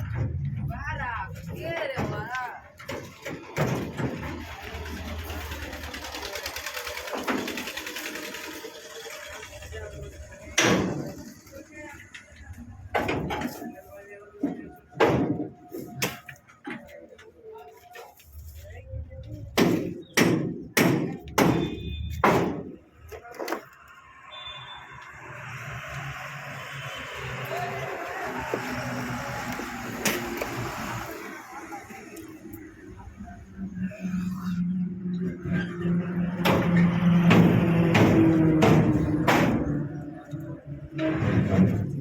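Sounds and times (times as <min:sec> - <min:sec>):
diesel truck engine clattering: 0:00.0 - 0:14.0, 0:34.8 - 0:42.0.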